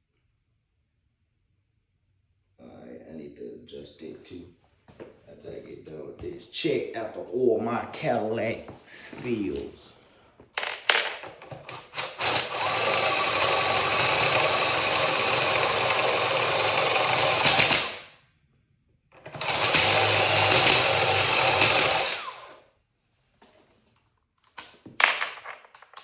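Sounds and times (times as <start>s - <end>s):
electric power drill drilling: 11.5s - 18.1s, 19.2s - 22.6s.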